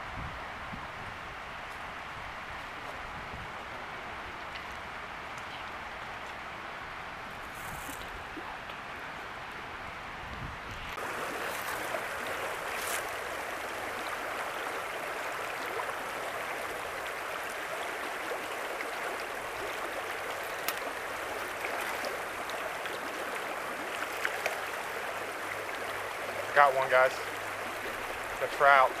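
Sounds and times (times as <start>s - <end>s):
river water rushing: 11.0s - 29.0s.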